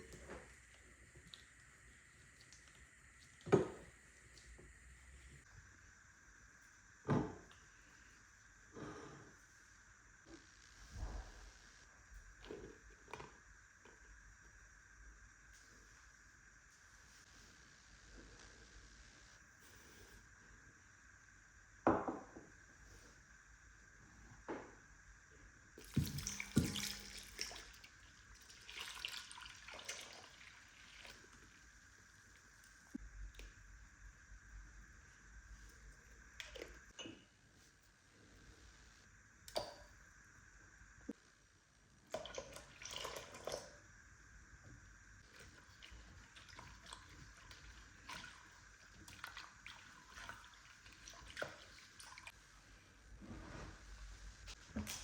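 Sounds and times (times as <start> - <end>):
water trickling and splashing: 25.8 - 32.0, 45.3 - 52.4.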